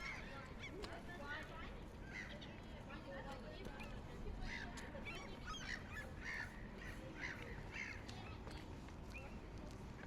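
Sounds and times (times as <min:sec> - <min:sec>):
crows cawing: 0:05.6 - 0:08.1.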